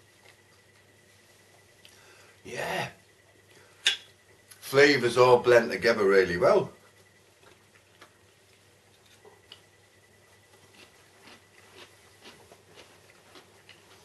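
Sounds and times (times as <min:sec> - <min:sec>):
faint chewing of food: 0:07.0 - 0:14.0.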